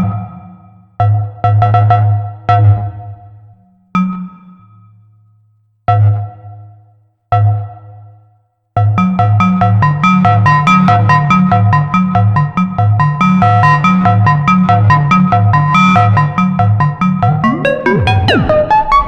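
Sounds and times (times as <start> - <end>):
fast sequenced synth bass line: 9.8 - 19.0
synthesizer bass notes: 14.2 - 19.0.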